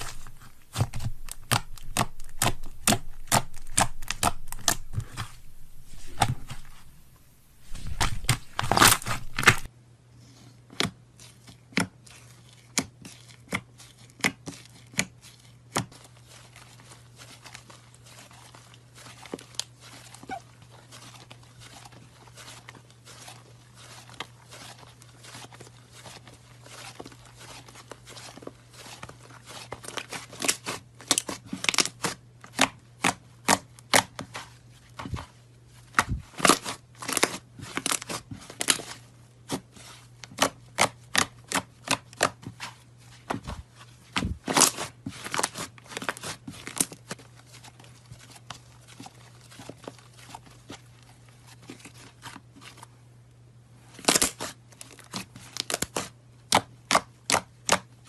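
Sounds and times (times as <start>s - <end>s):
crisp crunches and snaps: 0.0s - 9.7s, 54.0s - 57.8s
steady low hum: 0.0s - 9.7s.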